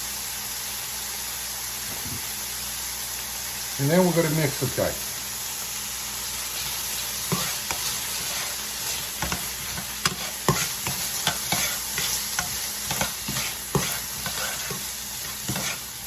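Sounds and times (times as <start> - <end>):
vegetables sizzling in a frying pan: 0.0 - 16.0
utensil scraping a pan: 6.5 - 16.0.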